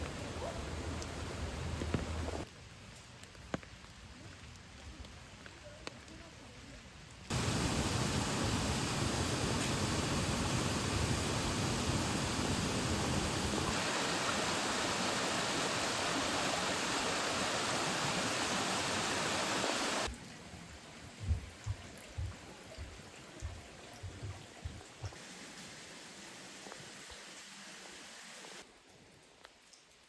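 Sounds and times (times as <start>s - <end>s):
rushing water: 0.0s - 2.5s, 7.3s - 28.6s
soft low thumps: 21.2s - 25.2s.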